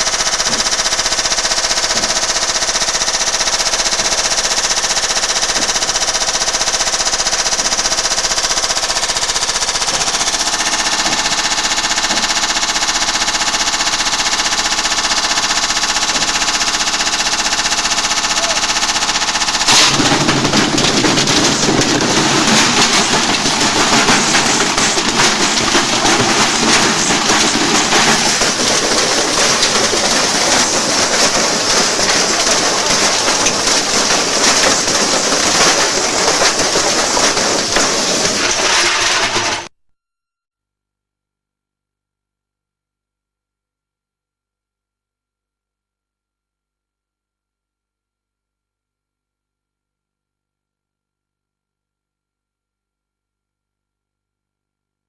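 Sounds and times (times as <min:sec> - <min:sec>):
grinding rattle: 0:00.0 - 0:39.7
washing machine spinning and banging: 0:00.0 - 0:39.7.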